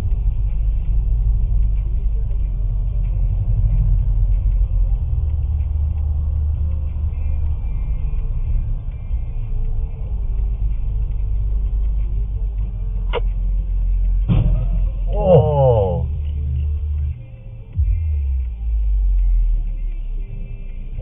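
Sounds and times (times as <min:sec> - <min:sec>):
car engine rumble: 0:00.0 - 0:21.0
road noise: 0:00.0 - 0:21.0.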